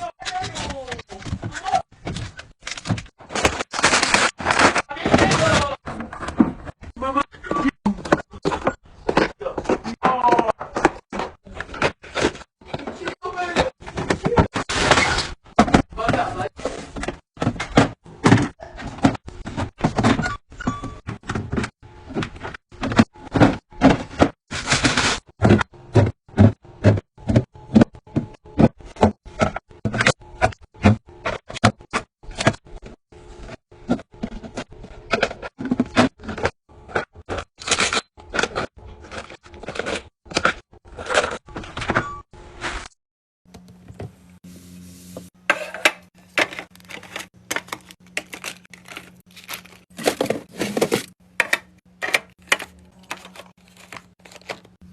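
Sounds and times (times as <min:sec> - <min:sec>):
food containers knocking and clattering: 0:07.6 - 0:20.3, 0:45.4 - 0:54.9
rustling and scraping: 0:44.4 - 0:54.8.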